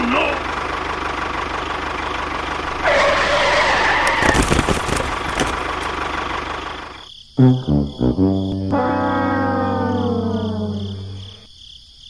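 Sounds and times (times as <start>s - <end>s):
model tractor engine running: 0.0s - 3.3s, 4.9s - 7.0s.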